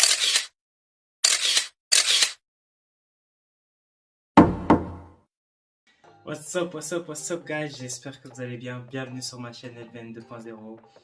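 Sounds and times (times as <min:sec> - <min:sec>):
sharp camera shutter clicks: 0:00.0 - 0:00.6, 0:01.2 - 0:02.4.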